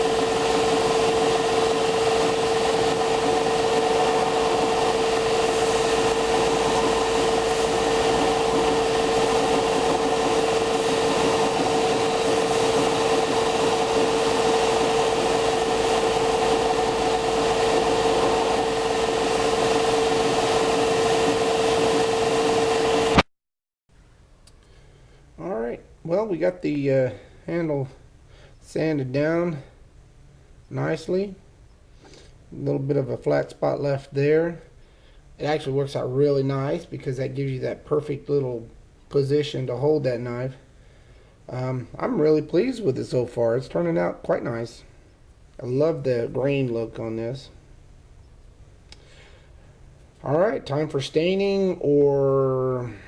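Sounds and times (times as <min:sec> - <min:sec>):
electric power sander whining: 0:00.0 - 0:23.2.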